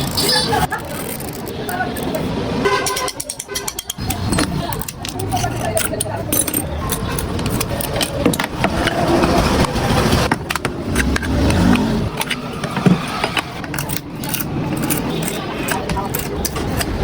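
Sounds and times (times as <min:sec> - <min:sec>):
clicks and taps: 0:02.8 - 0:09.0
vehicle engine running: 0:04.0 - 0:17.0.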